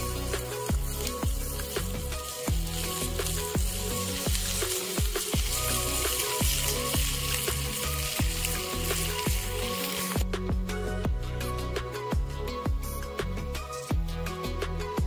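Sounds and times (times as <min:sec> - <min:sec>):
food frying sizzle: 0:00.0 - 0:11.0
background music with beat: 0:00.0 - 0:15.0.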